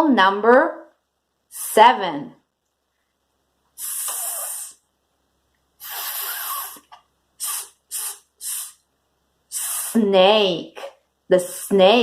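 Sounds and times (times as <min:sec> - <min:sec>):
person hissing like a snake: 0:03.8 - 0:04.8, 0:05.8 - 0:08.8, 0:09.5 - 0:10.0.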